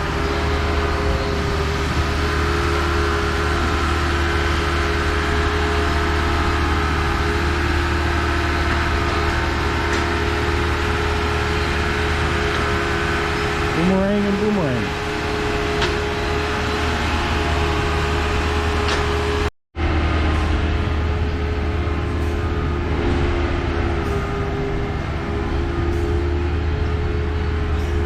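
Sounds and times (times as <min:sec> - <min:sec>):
engine humming steadily: 0:00.0 - 0:28.0.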